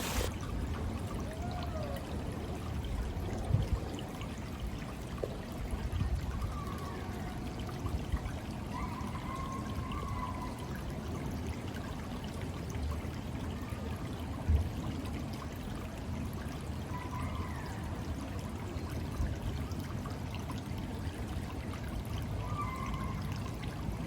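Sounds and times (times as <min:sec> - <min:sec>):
water pouring and splashing: 0:00.0 - 0:09.5.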